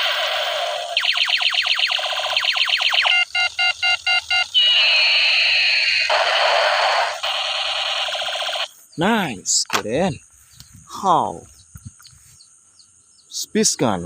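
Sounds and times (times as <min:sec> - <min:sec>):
laser zaps: 0:00.0 - 0:03.2, 0:04.5 - 0:08.7.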